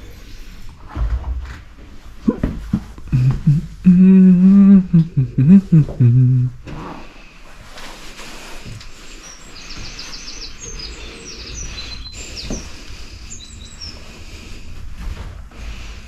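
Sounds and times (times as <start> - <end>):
songbird chirps and trills: 9.0 - 14.6.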